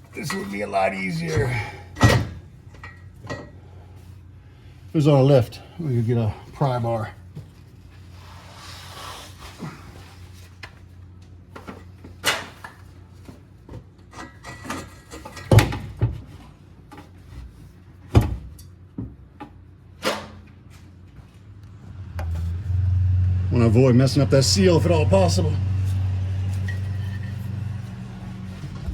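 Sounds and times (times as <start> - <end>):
metal knocks and clanks: 26.4 - 28.9.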